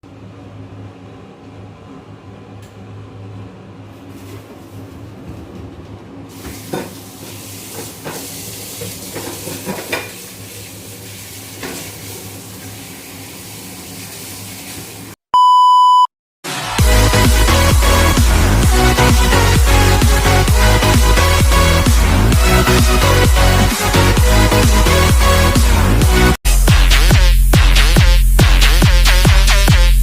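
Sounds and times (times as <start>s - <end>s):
food sizzling in a pan: 6.3s - 15.1s
single-pitched beep: 15.4s - 16.1s.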